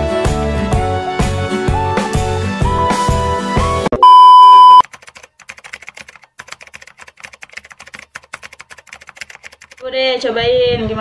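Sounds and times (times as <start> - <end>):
loud test-pattern beep: 4.0 - 4.8
keyboard typing clicks: 4.8 - 9.8.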